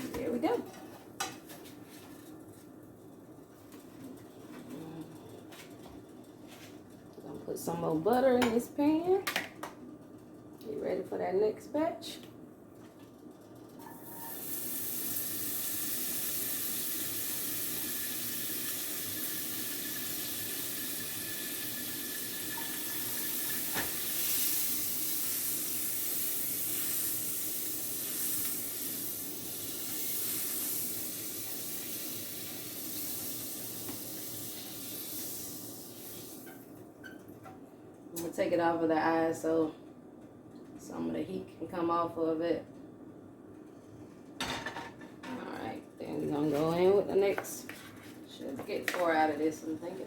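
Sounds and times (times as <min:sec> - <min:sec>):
butter sizzling in a frying pan: 0:13.9 - 0:36.5.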